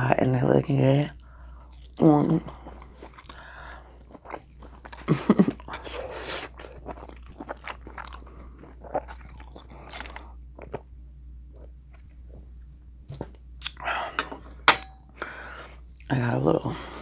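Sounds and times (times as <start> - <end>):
chewing and crunchy bites: 1.1 - 12.4
mouth clicks and smacks: 13.6 - 13.8.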